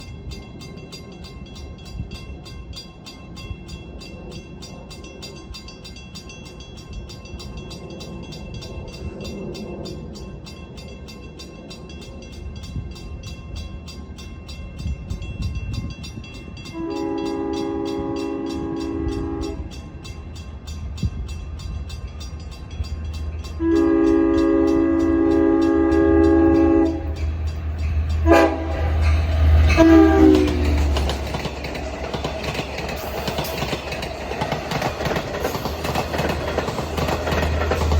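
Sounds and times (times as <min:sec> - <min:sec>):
diesel locomotive rumble: 0:12.2 - 0:37.9
train horn blasts: 0:16.7 - 0:19.9, 0:23.5 - 0:31.2.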